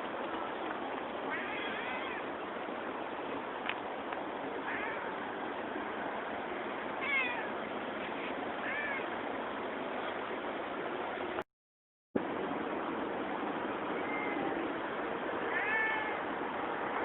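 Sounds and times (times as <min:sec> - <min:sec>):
cat meowing: 0:01.3 - 0:02.3, 0:07.0 - 0:07.5, 0:08.6 - 0:09.1, 0:14.0 - 0:14.6, 0:15.5 - 0:16.2.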